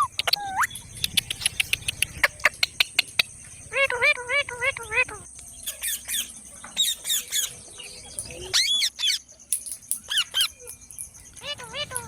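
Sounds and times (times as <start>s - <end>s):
parrot squawking: 11.4s - 12.0s.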